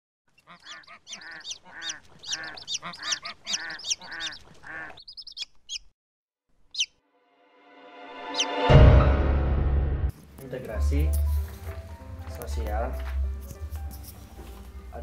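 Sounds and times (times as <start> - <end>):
rapid bird calls: 0.3 - 5.9, 6.7 - 7.0.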